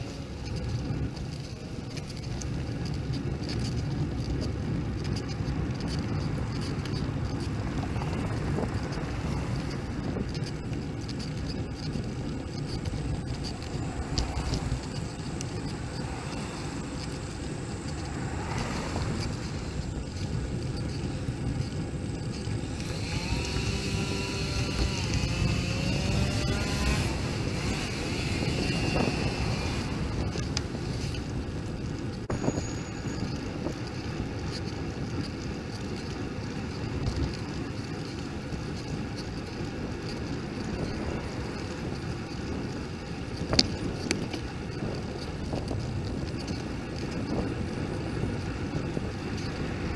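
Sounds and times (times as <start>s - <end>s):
bike riding rumble: 0.0s - 49.9s
wind buffeting microphone: 0.0s - 49.9s
motor hum passing: 3.7s - 32.0s.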